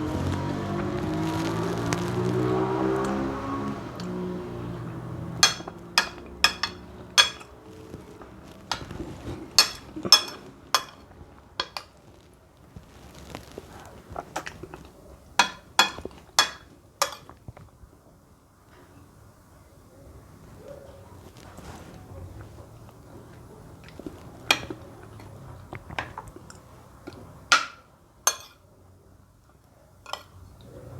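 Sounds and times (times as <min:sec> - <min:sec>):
spoon clinking against bowl: 0:05.4 - 0:07.6, 0:09.6 - 0:11.9, 0:15.4 - 0:17.4, 0:27.1 - 0:28.6.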